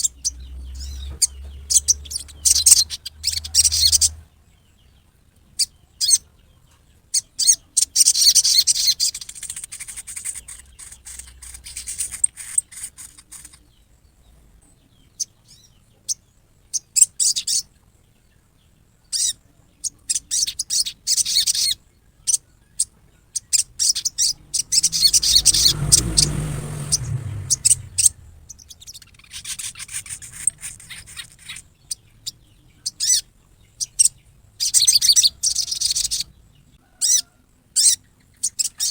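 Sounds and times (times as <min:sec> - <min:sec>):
bird rasping chatter call: 0:00.0 - 0:04.3, 0:07.2 - 0:13.8, 0:19.1 - 0:38.9
low rumble: 0:00.0 - 0:04.3.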